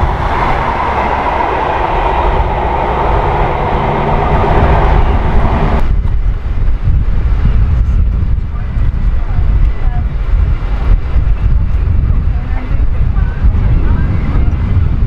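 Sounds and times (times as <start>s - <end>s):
train running past: 0.0s - 15.0s
wind buffeting microphone: 0.0s - 15.0s.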